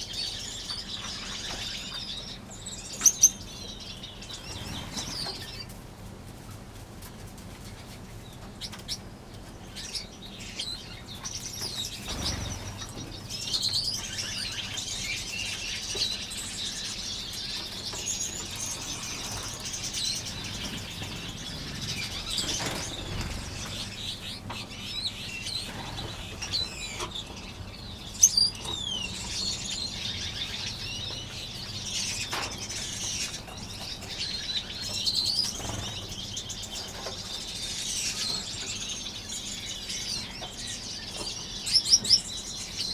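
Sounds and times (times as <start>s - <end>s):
finches chirping: 0.0s - 5.7s, 8.6s - 42.9s
wing flutters: 18.3s - 24.6s.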